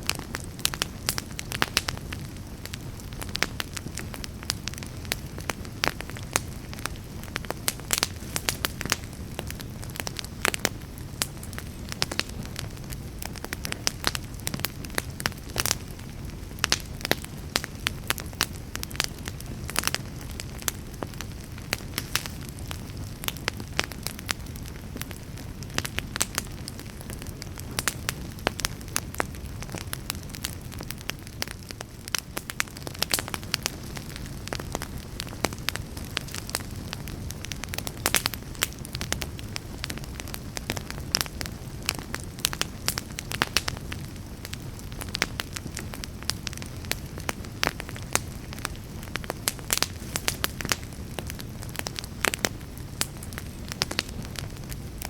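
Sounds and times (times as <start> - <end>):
fire burning in fireplace: 0.0 - 55.0
fire crackles and pops: 0.0 - 55.0.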